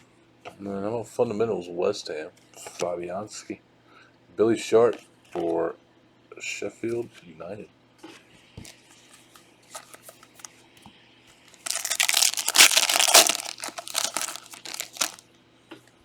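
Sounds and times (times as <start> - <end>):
packaging ripping and crinkling: 9.8 - 10.5, 11.6 - 15.2.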